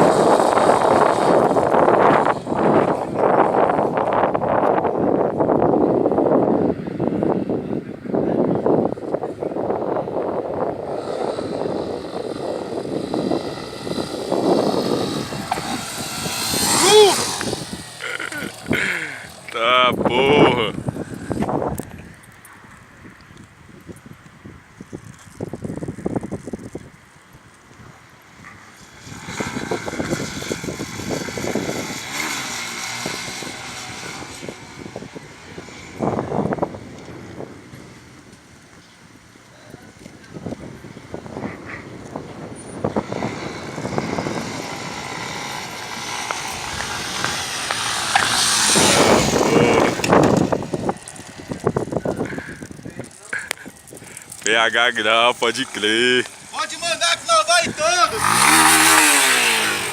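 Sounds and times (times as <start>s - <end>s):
motorcycle engine running: 9.9s - 21.5s, 40.6s - 54.5s, 57.6s - 59.9s.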